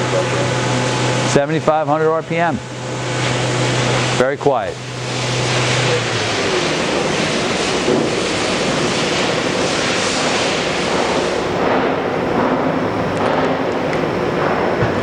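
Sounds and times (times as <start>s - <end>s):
machine spindle hissing: 2.8s - 12.9s.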